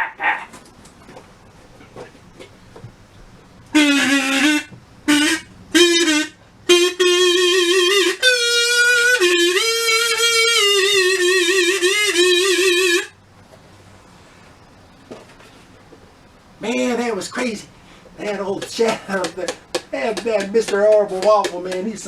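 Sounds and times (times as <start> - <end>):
reedy instrument solo tune: 3.7 - 13.2.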